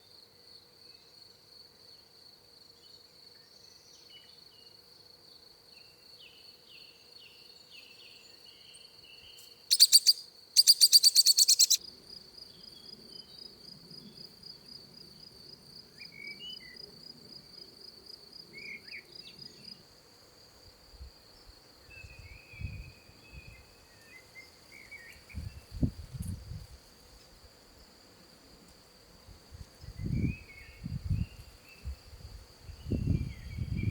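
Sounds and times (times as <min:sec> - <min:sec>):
birds chirping: 0:09.7 - 0:11.8
insect trilling: 0:09.7 - 0:11.8.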